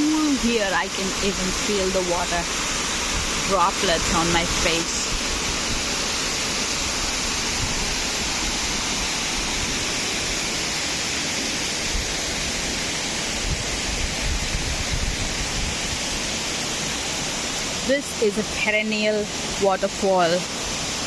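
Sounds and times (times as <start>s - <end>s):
waterfall crashing into pool: 0.0s - 21.0s
wind gusts on microphone: 13.3s - 16.4s.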